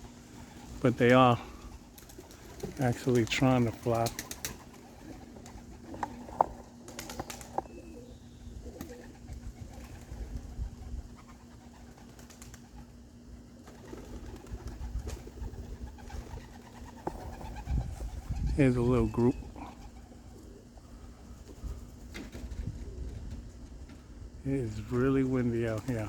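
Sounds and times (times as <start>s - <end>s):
pigeons cooing: 0.0s - 26.0s
steady low hum: 0.0s - 26.0s
wind rumbling on microphone: 8.4s - 11.2s, 14.4s - 19.8s, 20.9s - 24.5s.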